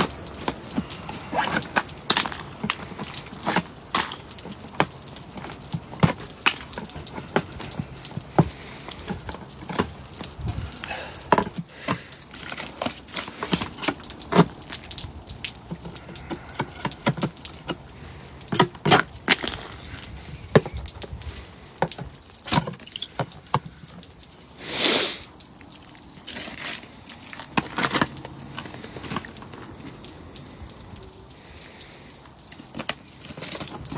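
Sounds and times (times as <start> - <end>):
metal spike chipping ice: 0.0 - 10.0.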